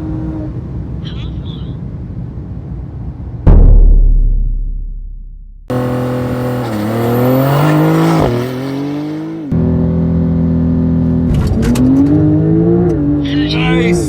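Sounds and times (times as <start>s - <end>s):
sports car engine accelerating: 5.6s - 13.3s.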